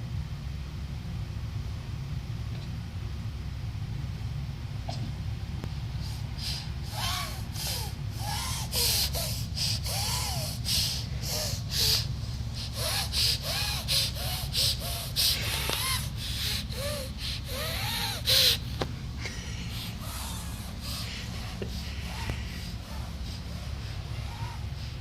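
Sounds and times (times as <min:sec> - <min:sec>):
steady low hum: 0:00.0 - 0:25.0
breathy sniffs: 0:05.9 - 0:25.0
squeaky nose whistling: 0:11.3 - 0:18.6.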